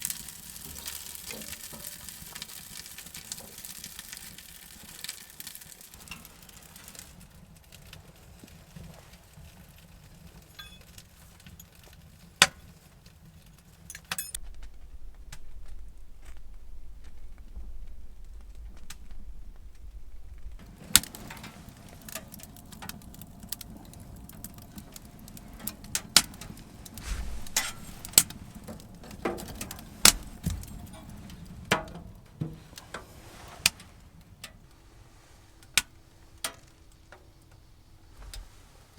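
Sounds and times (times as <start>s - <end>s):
sharp clicks and light knocks: 13.8s - 34.7s, 35.6s - 37.6s
low rumble: 14.4s - 31.7s.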